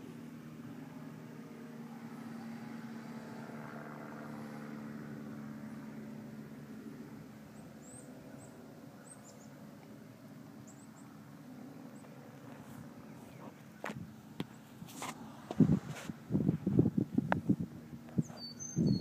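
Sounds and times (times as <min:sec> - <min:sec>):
engine hum: 0:00.0 - 0:19.0
high bird chirps: 0:18.2 - 0:19.0.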